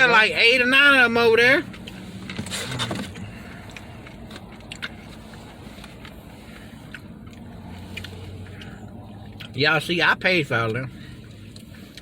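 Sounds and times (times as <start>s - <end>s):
low steady hum: 0.0s - 12.0s
chewing crunches: 1.7s - 9.6s.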